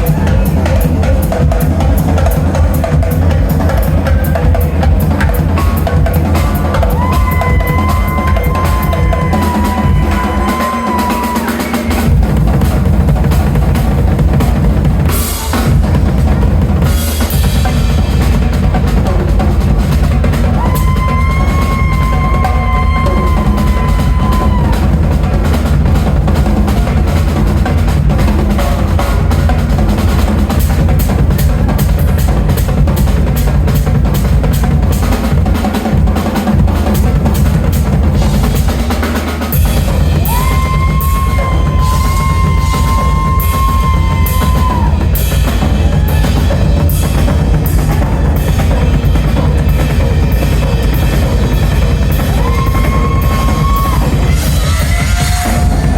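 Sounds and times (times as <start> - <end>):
drum kit played hard: 0.0 - 55.9.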